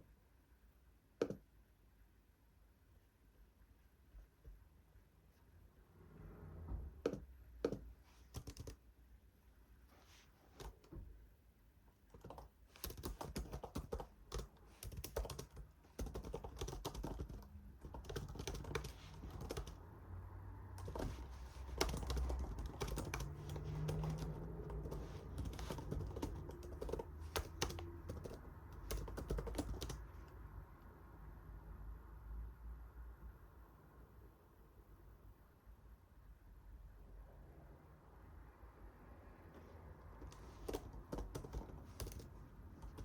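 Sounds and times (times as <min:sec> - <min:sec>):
keyboard typing clicks: 0:07.0 - 0:08.8, 0:12.1 - 0:19.8, 0:20.8 - 0:30.0, 0:40.2 - 0:43.0.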